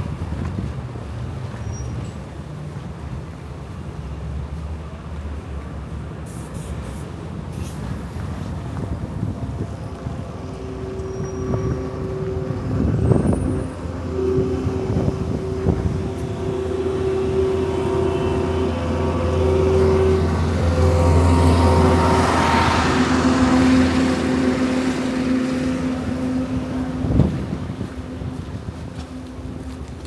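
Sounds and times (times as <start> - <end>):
vehicle engine humming: 7.5 - 30.0
steady higher tones: 9.0 - 30.0.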